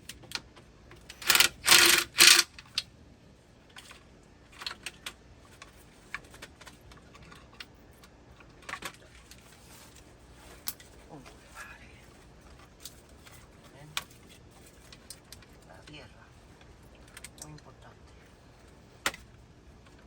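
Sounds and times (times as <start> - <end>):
metal tools clinking and rattling: 1.1 - 2.8.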